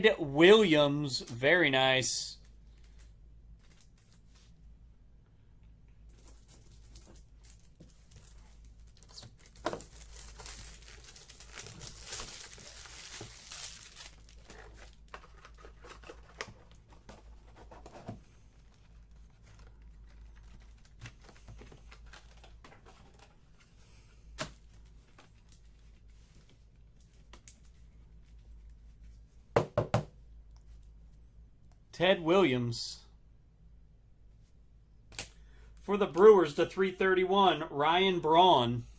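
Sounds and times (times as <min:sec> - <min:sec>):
packaging tearing and crinkling: 0:06.2 - 0:16.8.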